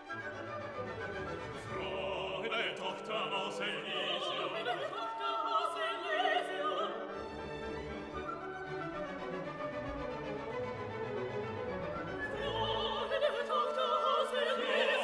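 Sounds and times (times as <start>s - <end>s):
orchestra playing: 0.0s - 2.6s, 7.1s - 13.4s
operatic singing voice: 1.5s - 7.4s, 12.0s - 15.0s.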